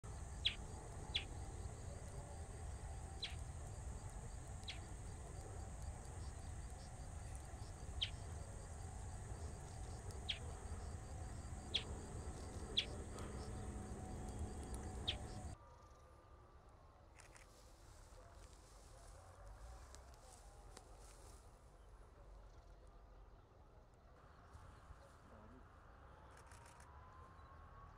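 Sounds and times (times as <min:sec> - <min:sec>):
low background rumble: 0:00.0 - 0:15.6
bird calling sharp notes: 0:11.7 - 0:15.6.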